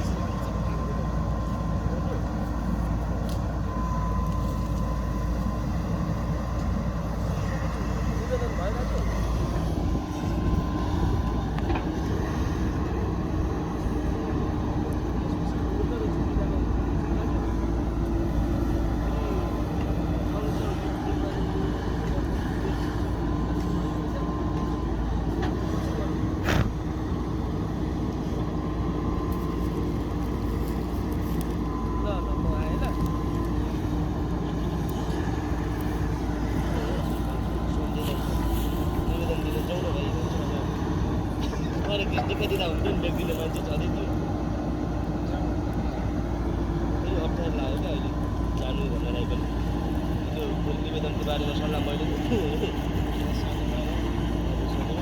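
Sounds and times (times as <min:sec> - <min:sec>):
diesel engine rumbling: 0:00.0 - 0:55.0.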